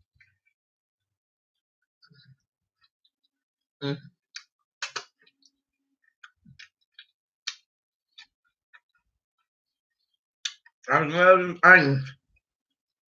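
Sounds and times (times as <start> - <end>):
person chewing with lip smacks: 4.3 - 5.5.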